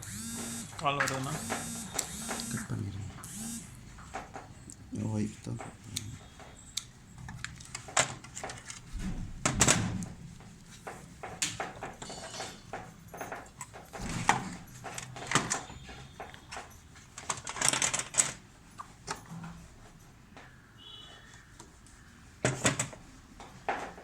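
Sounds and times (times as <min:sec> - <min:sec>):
hands and tools clicking and rattling: 0:03.4 - 0:19.7.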